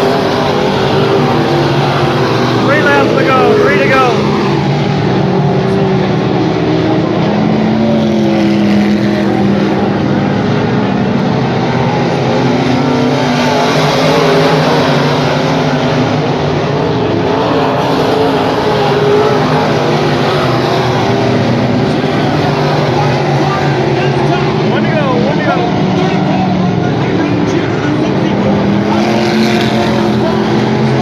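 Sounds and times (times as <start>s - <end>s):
race car engines: 0.0s - 31.0s.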